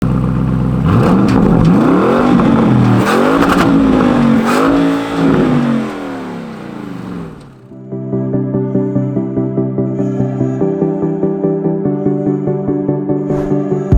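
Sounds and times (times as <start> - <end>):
car engine revving: 0.0 - 7.7
exhaust cracks: 0.0 - 7.7.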